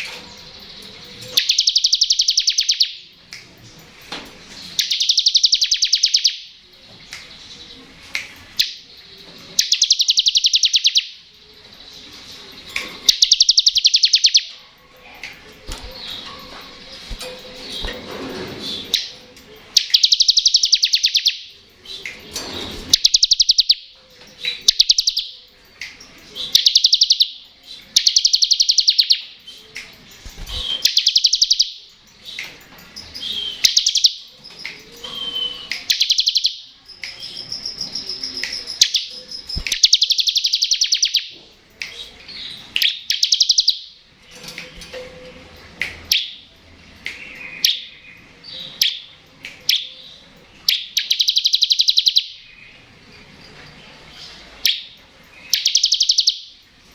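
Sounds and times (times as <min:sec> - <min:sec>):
bird singing fast high trills: 0:01.4 - 0:03.0, 0:04.8 - 0:06.5, 0:09.6 - 0:11.2, 0:13.1 - 0:14.5, 0:19.8 - 0:21.5, 0:22.9 - 0:23.9, 0:26.5 - 0:29.2, 0:30.4 - 0:31.8, 0:42.9 - 0:43.9, 0:50.7 - 0:52.4, 0:55.5 - 0:56.5.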